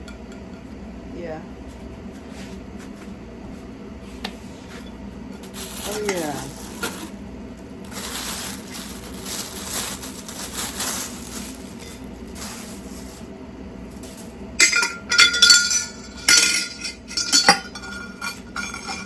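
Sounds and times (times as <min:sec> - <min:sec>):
items clinking together: 0:05.4 - 0:07.1, 0:07.9 - 0:13.2, 0:14.0 - 0:19.0
packaging rustling: 0:05.4 - 0:07.2, 0:07.8 - 0:13.3.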